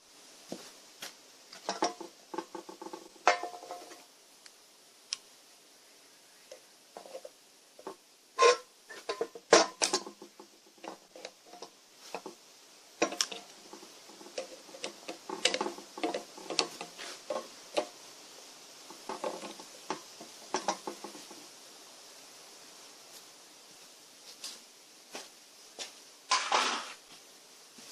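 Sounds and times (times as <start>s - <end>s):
faint steady hiss: 0.0s - 27.9s
metal parts and tools clinking: 7.0s - 12.3s.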